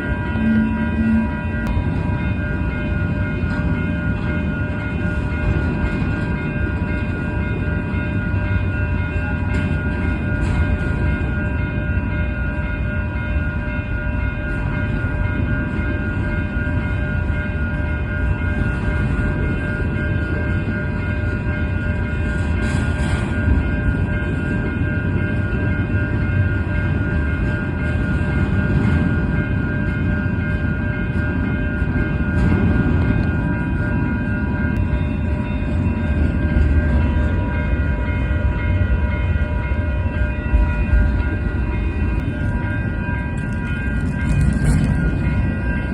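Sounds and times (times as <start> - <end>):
high ringing tone: 0.0 - 45.9
train wheels rumbling on rail: 0.0 - 45.9.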